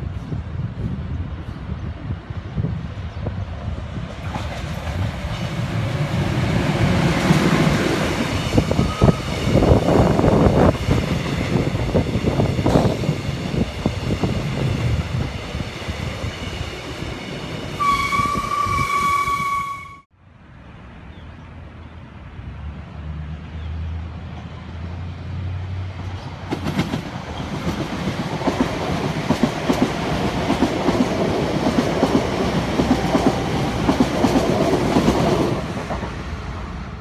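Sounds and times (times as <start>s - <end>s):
train horn: 17.8s - 20.1s.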